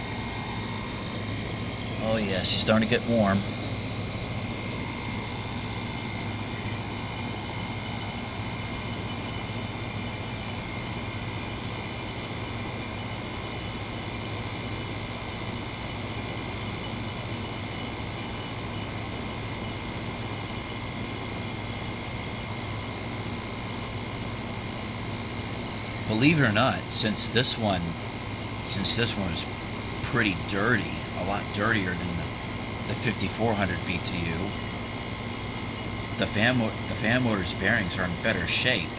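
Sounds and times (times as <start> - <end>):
air conditioner running: 0.0 - 38.9.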